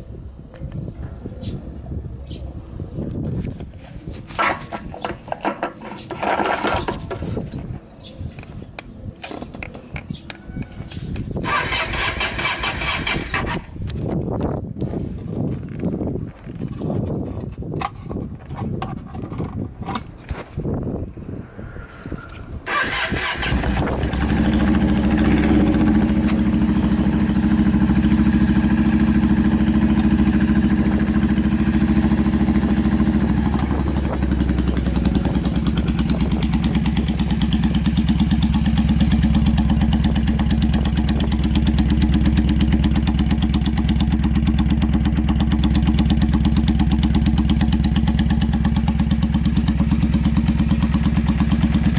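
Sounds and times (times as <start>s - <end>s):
motorcycle engine idling: 22.7s - 51.9s.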